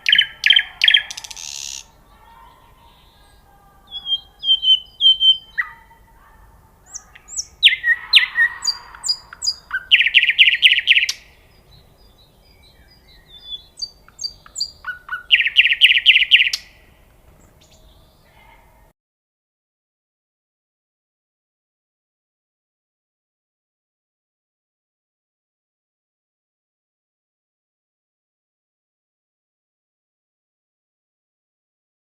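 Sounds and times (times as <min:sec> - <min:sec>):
songbird singing: 0:00.0 - 0:18.9.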